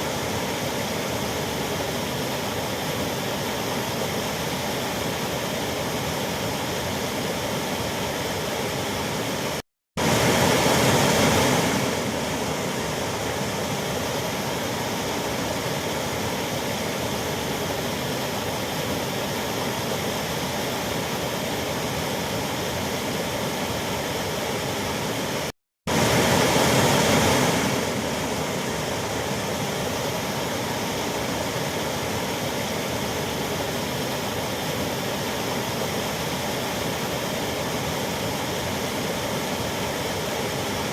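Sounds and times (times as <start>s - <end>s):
waterfall roaring: 0.0s - 40.9s.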